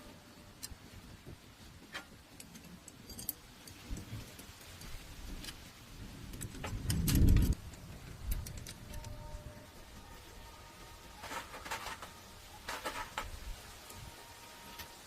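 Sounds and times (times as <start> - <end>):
metal tools clinking: 1.9 - 4.1.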